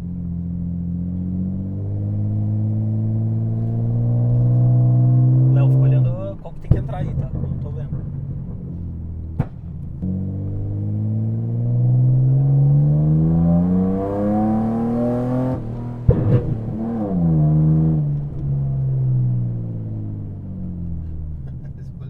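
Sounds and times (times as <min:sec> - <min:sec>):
car engine accelerating: 0:00.0 - 0:22.0
sharp exhaust crack: 0:05.5 - 0:10.2.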